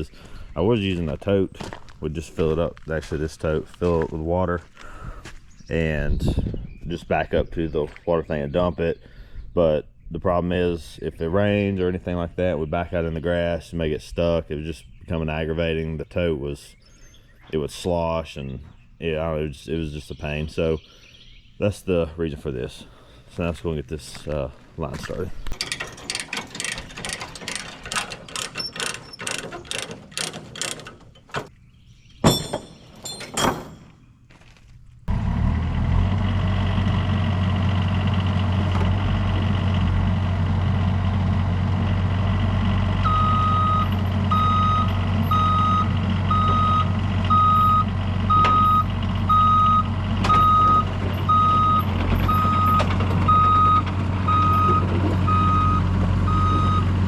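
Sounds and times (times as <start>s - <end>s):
quick clicking and rattling: 25.4s - 31.5s
excavator diesel engine running: 35.1s - 57.0s
travel alarm beeping: 43.0s - 56.9s.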